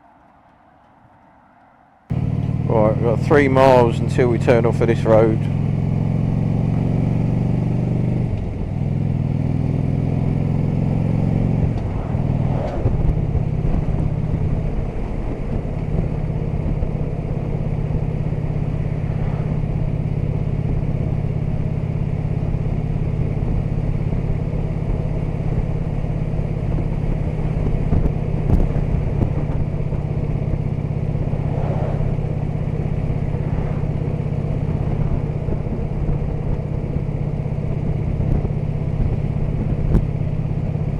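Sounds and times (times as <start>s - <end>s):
wind and road noise: 0.0s - 40.9s
motorcycle engine running: 2.1s - 40.9s.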